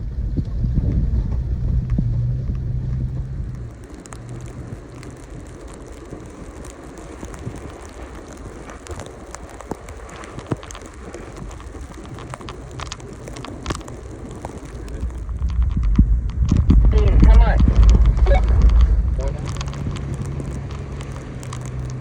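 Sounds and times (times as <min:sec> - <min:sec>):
crackles and sharp knocks: 0:00.0 - 0:22.0
low engine rumble: 0:00.0 - 0:22.0.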